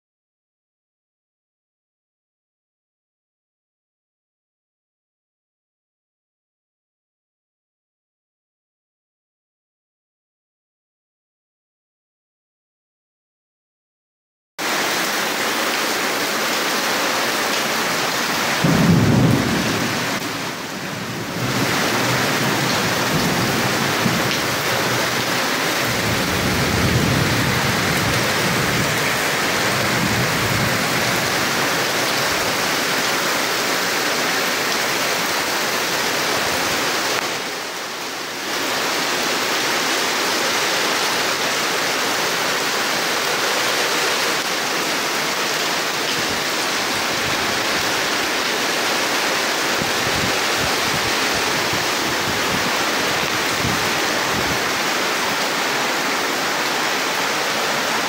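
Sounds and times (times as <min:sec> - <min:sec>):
heavy rain on tile roof: 0:14.6 - 0:58.0
wind: 0:14.6 - 0:58.0.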